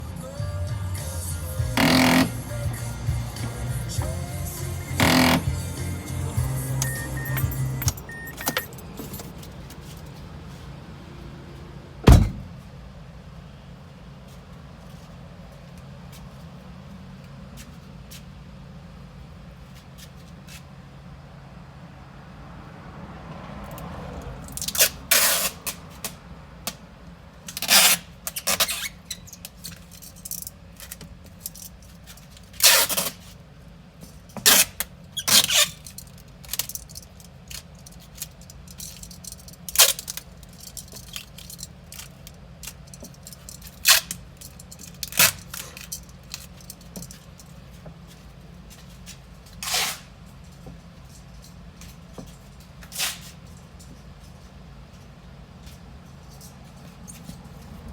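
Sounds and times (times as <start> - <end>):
tools and small parts clattering: 6.8 - 10.2, 27.4 - 33.4, 34.0 - 57.8.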